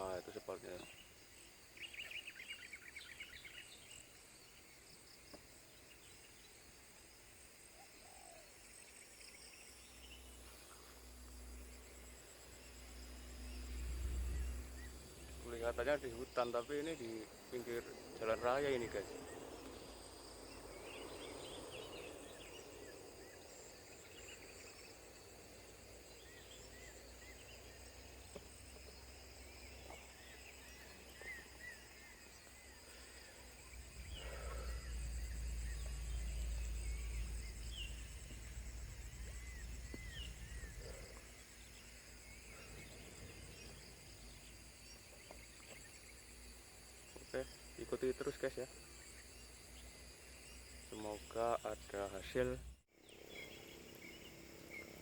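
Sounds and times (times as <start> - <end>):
birds chirping: 0.0 - 55.0
high insect drone: 0.0 - 55.0
low rumble: 33.6 - 41.2.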